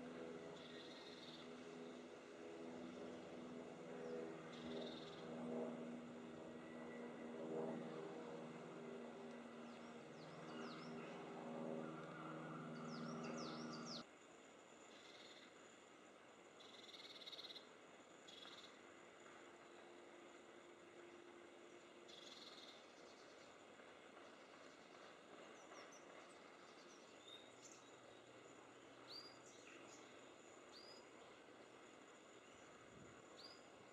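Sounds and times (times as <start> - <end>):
low buzzing drone: 0.0 - 14.1, 16.2 - 33.9
small birds chirping: 11.9 - 14.0.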